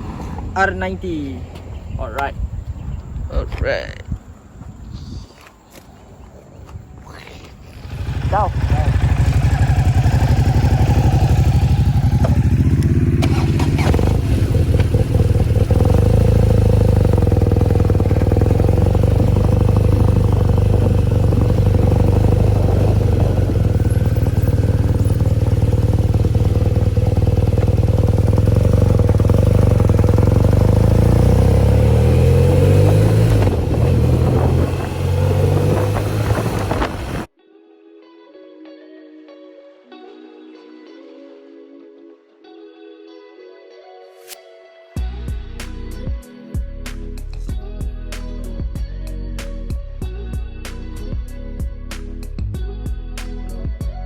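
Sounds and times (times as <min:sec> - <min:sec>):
motorcycle engine running: 0:07.8 - 0:37.3.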